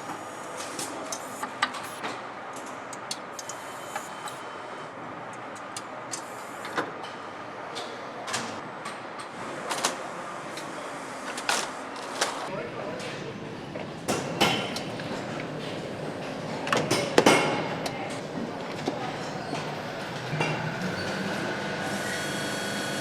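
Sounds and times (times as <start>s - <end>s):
machinery hum: 0.0s - 12.4s, 18.2s - 23.0s.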